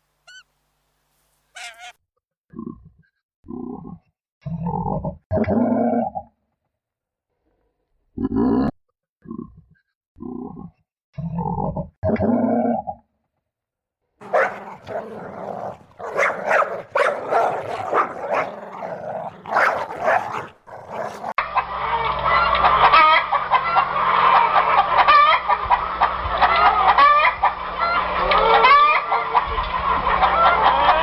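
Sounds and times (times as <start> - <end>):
flock of poultry calling: 1.6 - 1.9.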